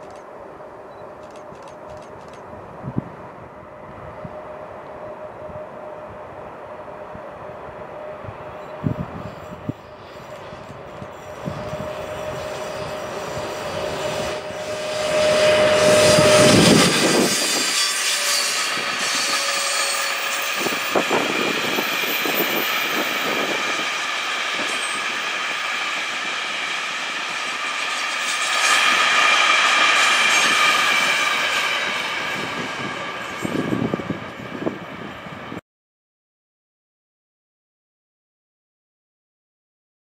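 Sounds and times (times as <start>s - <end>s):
electric locomotive whine: 0.0s - 35.6s
high wheel squeal: 7.9s - 35.4s.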